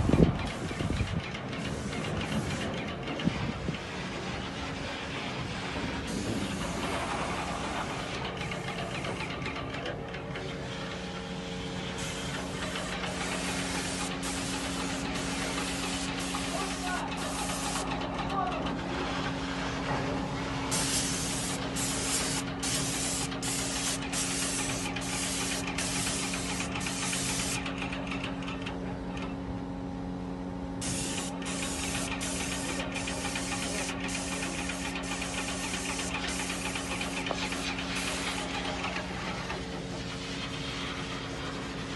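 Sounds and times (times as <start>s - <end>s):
paint sprayer pump humming: 1.6s - 2.6s, 6.1s - 9.2s, 12.0s - 18.0s, 20.7s - 27.9s, 30.8s - 39.6s
hiss of paint spraying: 1.6s - 2.7s, 6.1s - 8.1s, 12.0s - 17.9s, 20.7s - 27.6s, 30.8s - 38.8s.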